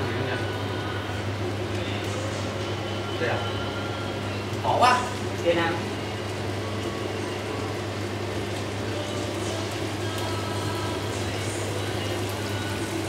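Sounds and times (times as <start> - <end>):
tofu sizzling in a wok: 4.4 - 13.0.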